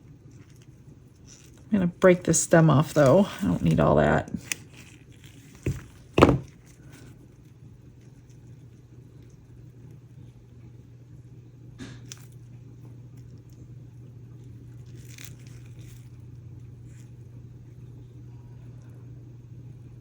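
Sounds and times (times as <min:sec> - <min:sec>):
steady low hum: 0:00.0 - 0:20.0
dried flowers crackling and rustling: 0:00.1 - 0:09.4, 0:14.3 - 0:17.2.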